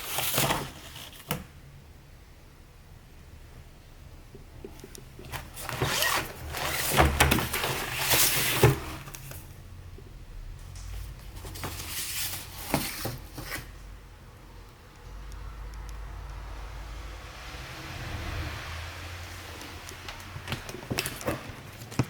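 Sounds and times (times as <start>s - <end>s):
rustling and clattering: 4.6s - 9.6s, 10.6s - 13.9s, 18.0s - 22.0s.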